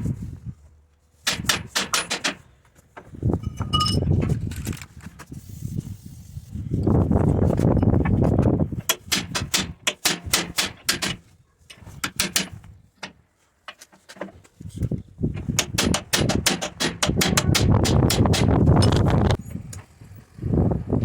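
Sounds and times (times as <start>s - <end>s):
low rumbling handling noise: 0.0s - 21.0s
sharp clicks and knocks: 1.2s - 4.9s, 7.9s - 14.6s, 15.3s - 19.8s.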